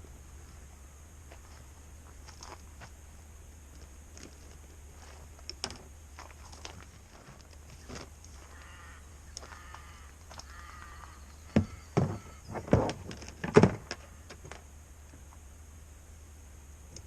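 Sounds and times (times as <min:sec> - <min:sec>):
short pitched calls: 0:07.8 - 0:12.6
sharp knocks and thumps: 0:11.5 - 0:14.6.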